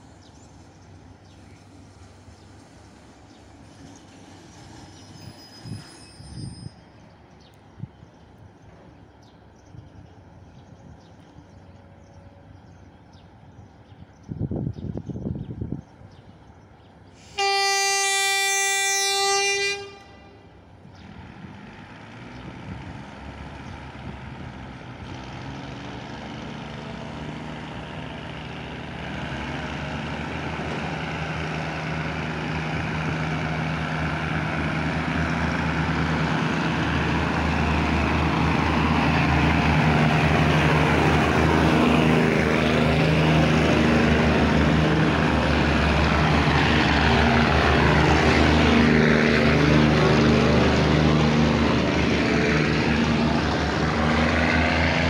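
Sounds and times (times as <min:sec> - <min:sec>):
diesel engine drone: 0:20.7 - 0:55.0.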